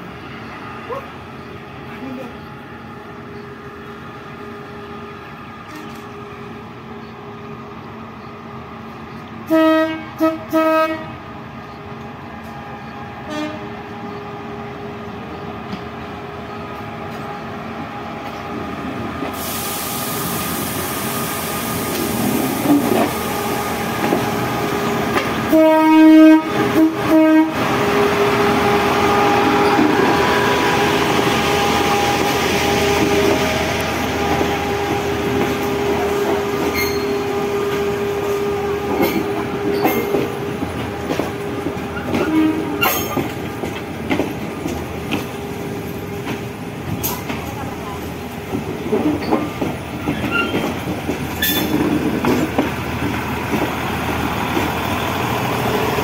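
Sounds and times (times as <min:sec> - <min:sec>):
train wheel noise: 0:00.0 - 0:09.6, 0:11.6 - 0:56.0
diesel train engine drone: 0:00.0 - 0:56.0
train horn blasts: 0:09.4 - 0:11.2, 0:13.2 - 0:13.8, 0:25.5 - 0:30.6, 0:42.0 - 0:43.0
wheels clacking over rail joints: 0:38.8 - 0:56.0.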